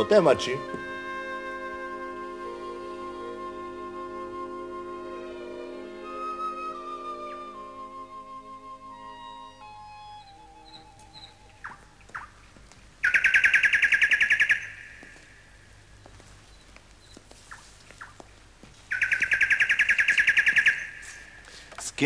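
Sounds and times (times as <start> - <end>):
songbird rattling trills: 10.6 - 12.4, 13.0 - 15.6, 18.9 - 21.4
short bird chirps: 18.9 - 21.4.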